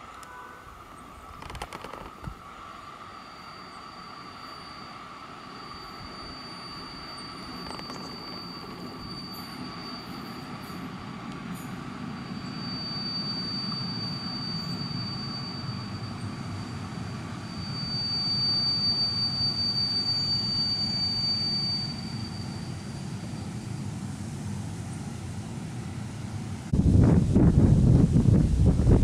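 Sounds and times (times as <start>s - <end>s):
low rumble of train: 0.0s - 29.0s
high-pitched squeal: 1.4s - 23.9s.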